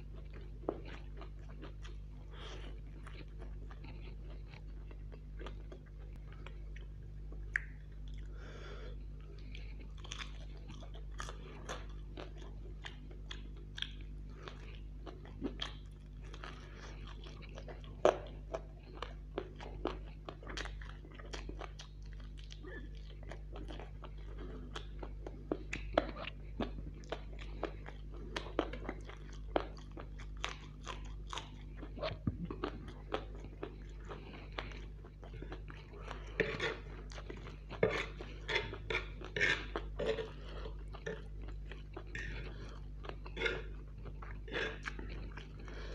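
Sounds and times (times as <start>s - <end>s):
man chewing crunchy food: 0.0s - 45.9s
wet mouth clicks: 7.5s - 7.8s.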